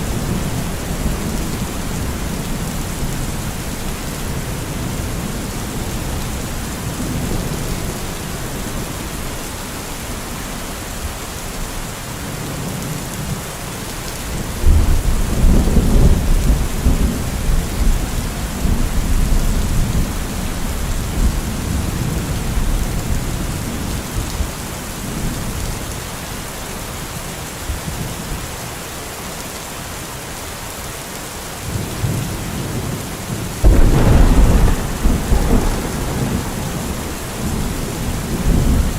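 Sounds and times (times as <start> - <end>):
steady rain: 0.0 - 38.9
rolling thunder: 33.6 - 38.9.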